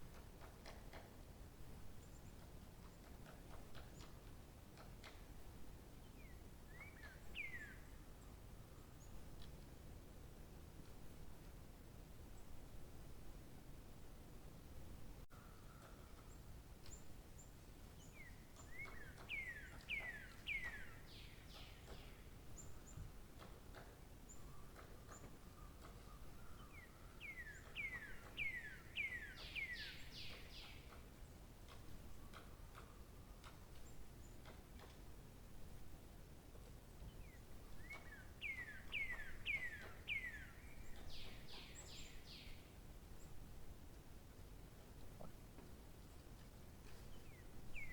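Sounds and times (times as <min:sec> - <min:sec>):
faint outdoor background noise: 0:00.0 - 0:47.9
songbird singing: 0:05.9 - 0:09.8, 0:15.2 - 0:35.1, 0:36.5 - 0:47.9.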